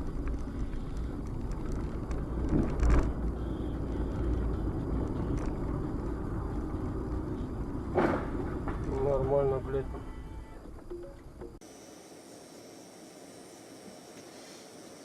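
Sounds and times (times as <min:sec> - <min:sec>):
car engine and road noise: 0:00.0 - 0:11.6.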